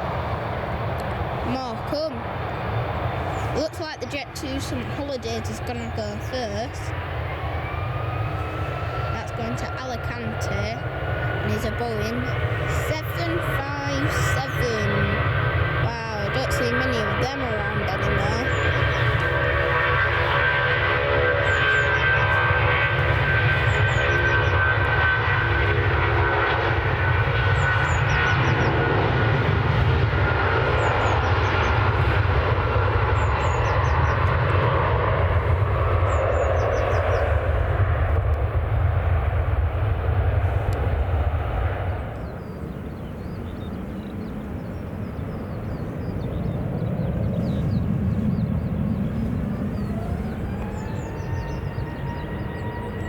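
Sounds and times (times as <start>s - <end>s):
jet engines roaring: 0.0s - 53.0s
small birds chirping: 15.9s - 19.3s, 23.5s - 24.6s, 27.4s - 28.9s, 30.6s - 32.1s, 33.0s - 34.5s, 36.0s - 37.4s, 42.0s - 53.0s.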